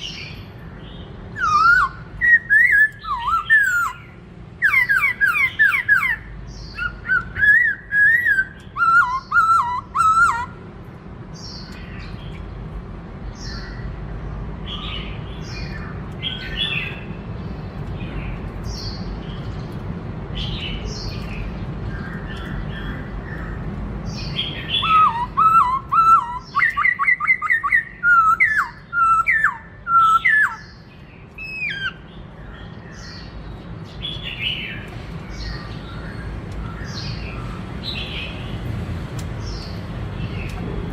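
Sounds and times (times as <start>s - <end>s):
soft bird chirps: 0.0s - 10.6s, 14.6s - 40.8s
bird singing whistled phrases: 1.4s - 10.6s, 24.3s - 30.8s, 31.4s - 32.0s.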